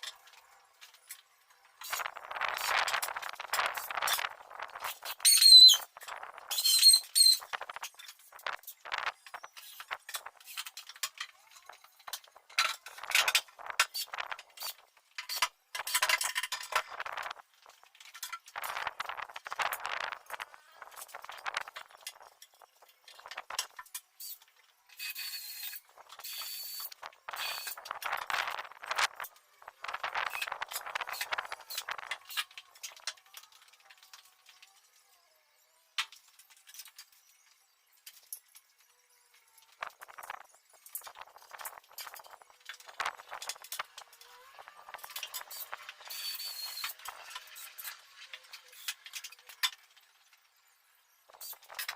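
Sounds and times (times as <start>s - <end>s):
tools and metal hardware clinking: 0.0s - 34.3s.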